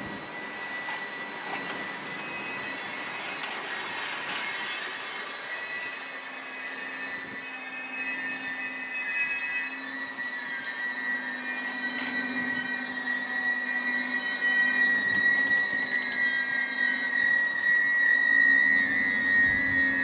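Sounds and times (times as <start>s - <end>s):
train coaches rolling past: 0.0s - 7.5s
high-pitched wheel squeal: 0.0s - 20.0s.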